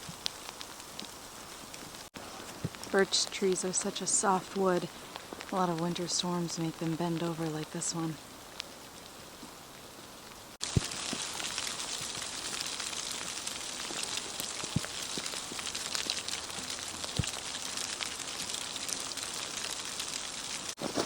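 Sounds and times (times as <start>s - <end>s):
sleet pellets ticking: 10.1s - 20.8s.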